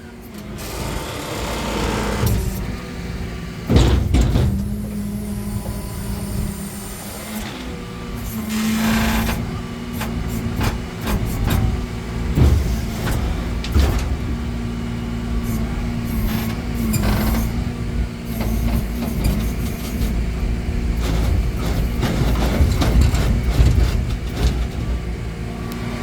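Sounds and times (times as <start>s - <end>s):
tow truck engine and hydraulics hum: 0.0s - 26.0s
knocks: 3.7s - 5.0s.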